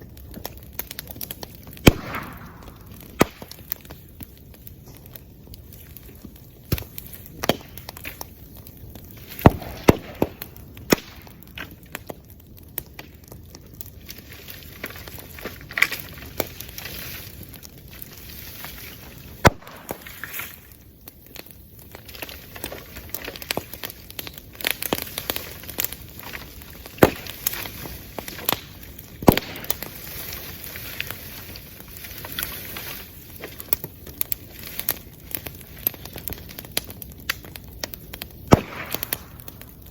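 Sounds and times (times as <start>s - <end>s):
bonfire crackling and popping: 0.0s - 39.9s
low hiss of fire: 0.0s - 39.9s.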